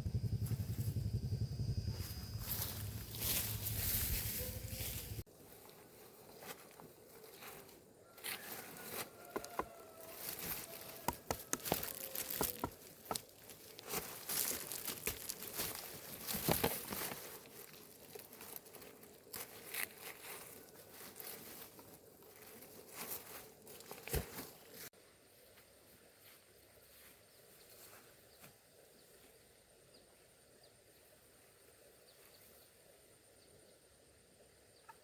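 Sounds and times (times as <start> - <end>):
rustling and crinkling handling: 2.5 - 24.9.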